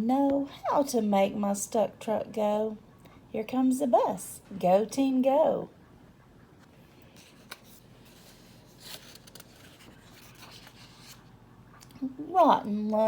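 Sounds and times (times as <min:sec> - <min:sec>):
book pages rustling: 0:07.0 - 0:11.3.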